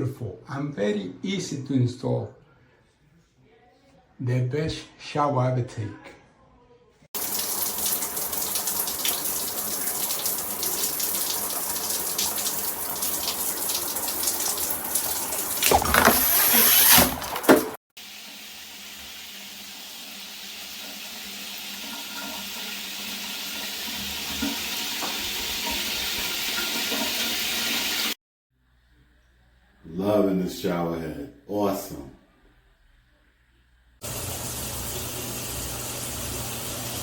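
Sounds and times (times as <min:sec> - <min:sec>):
heavy water splashing: 0:07.2 - 0:17.8
shower head spraying water: 0:07.2 - 0:28.2, 0:34.0 - 0:37.0.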